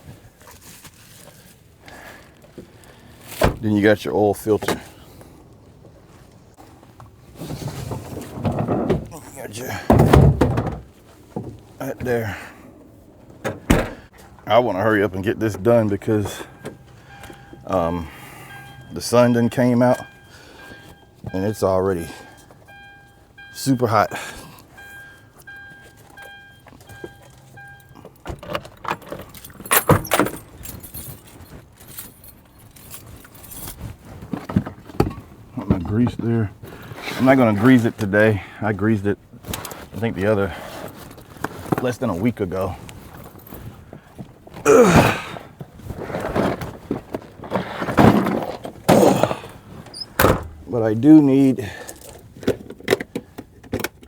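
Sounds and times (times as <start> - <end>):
metal clunks and knocks: 7.8 - 9.1, 9.8 - 12.1, 13.3 - 14.2, 46.5 - 50.7
keys and tools clinking: 24.1 - 34.0, 51.7 - 54.0.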